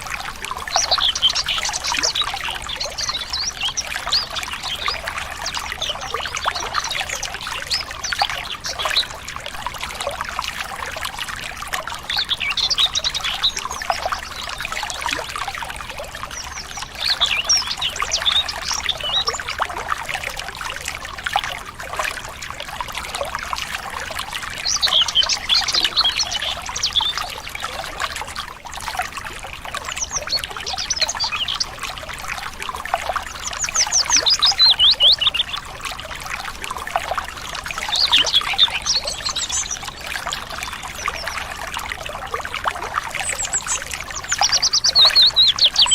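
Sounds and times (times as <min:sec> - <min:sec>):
stream trickling and splashing: 0:00.0 - 0:45.9
birds chirping: 0:00.6 - 0:09.2, 0:16.2 - 0:19.6, 0:24.4 - 0:27.7, 0:29.9 - 0:31.8, 0:33.2 - 0:35.7, 0:37.3 - 0:41.6, 0:43.2 - 0:45.9.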